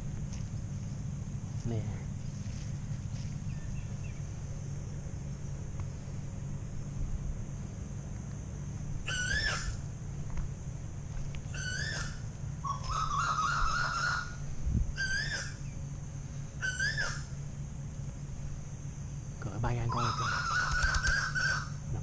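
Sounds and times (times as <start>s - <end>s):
high insect-like buzz: 0.0s - 22.0s
low hum: 0.0s - 22.0s
bird whistling calls: 9.0s - 9.8s, 11.5s - 15.8s, 16.6s - 17.4s, 19.8s - 21.8s
stuttering bird call: 9.0s - 9.8s, 11.5s - 15.8s, 16.5s - 17.4s, 19.6s - 22.0s.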